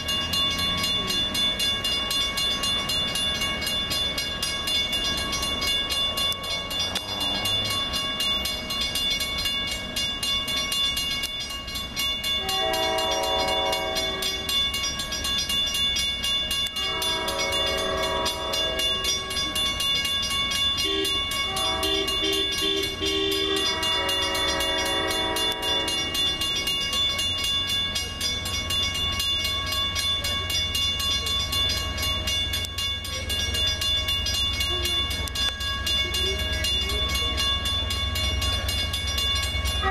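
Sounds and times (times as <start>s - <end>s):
train rumbling: 0.0s - 39.9s
train horn: 12.4s - 14.4s, 16.8s - 19.2s, 20.8s - 26.2s.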